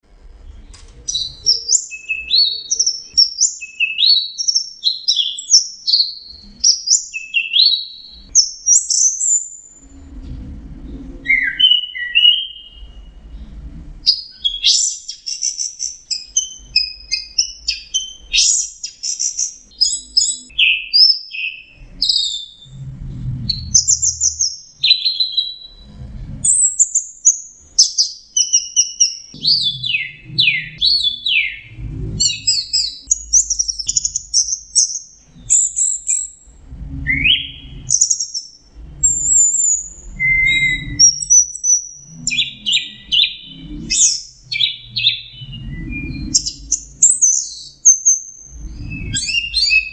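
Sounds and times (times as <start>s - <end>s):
thrush singing whistled phrases: 1.1s - 9.7s, 11.2s - 13.2s, 14.1s - 22.7s, 26.5s - 36.3s, 37.1s - 49.9s
low rumbles: 9.8s - 11.3s, 12.7s - 14.1s, 22.6s - 24.8s, 25.6s - 26.7s, 29.4s - 34.4s, 36.4s - 38.0s, 38.6s - 41.1s.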